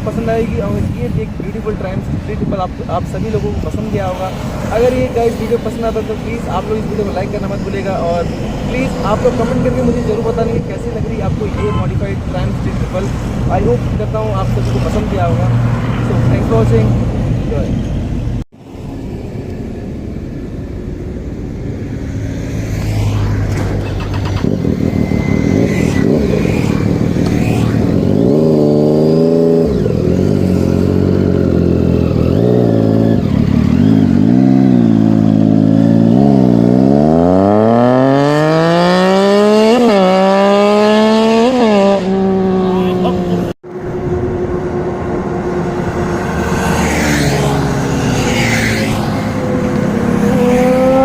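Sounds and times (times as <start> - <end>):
engine revving and accelerating: 22.0 - 51.0.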